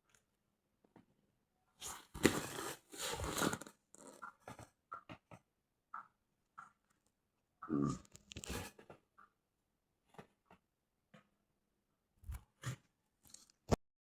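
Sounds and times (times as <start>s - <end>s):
crinkling crunching noise: 1.8s - 5.1s, 7.9s - 9.0s
small clicks and taps: 4.0s - 7.2s.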